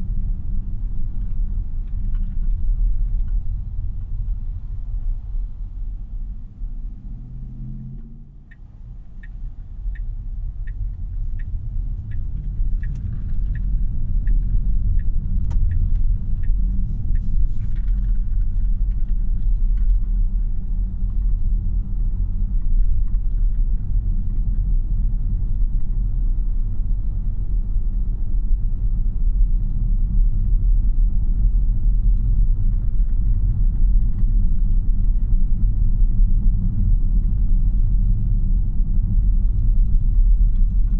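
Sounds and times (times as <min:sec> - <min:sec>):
turn signal ticking: 0:00.0 - 0:26.0
road and tyre rumble: 0:00.0 - 0:40.9.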